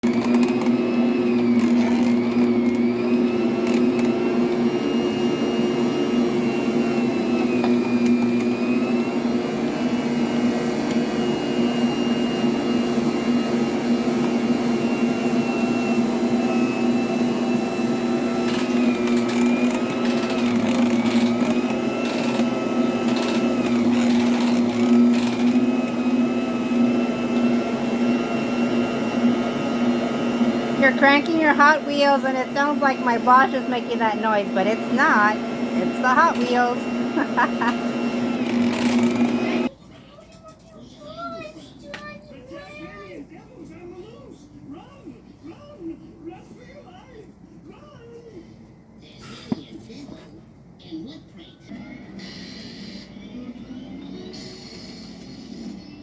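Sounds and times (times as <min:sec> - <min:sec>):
toy track electric whir: 0:00.0 - 0:39.7, 0:53.8 - 0:56.0.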